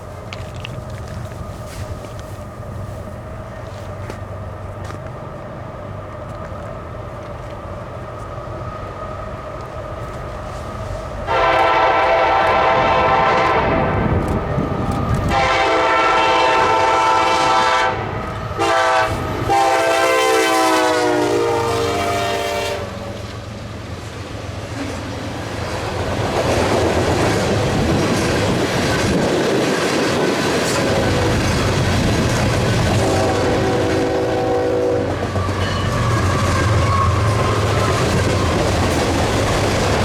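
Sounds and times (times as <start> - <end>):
freight train wheel clatter: 0.0 - 40.0
locomotive air horn: 11.3 - 14.2, 15.3 - 23.2, 32.9 - 37.8.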